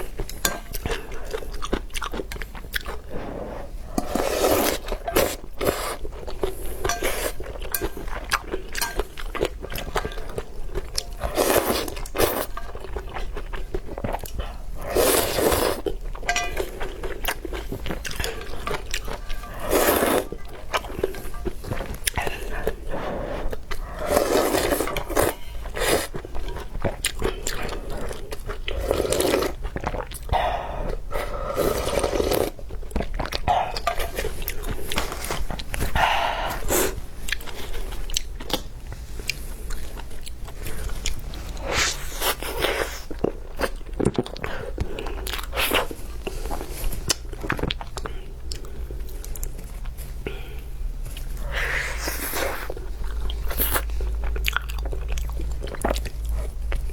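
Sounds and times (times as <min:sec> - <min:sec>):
person chewing and biting food: 0:04.0 - 0:30.3.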